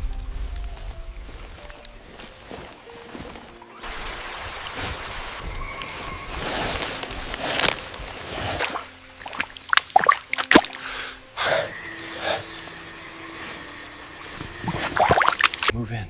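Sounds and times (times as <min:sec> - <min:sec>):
sharp splashes: 0:03.7 - 0:11.2, 0:14.2 - 0:15.7
wet sloshing and squishing: 0:03.8 - 0:10.9, 0:14.4 - 0:15.7.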